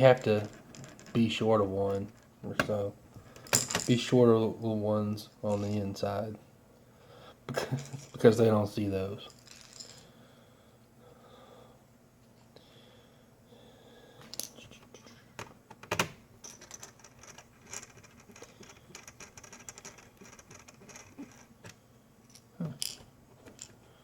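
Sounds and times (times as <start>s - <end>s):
small screws and plastic parts rattling: 0.0s - 2.3s, 14.3s - 23.8s.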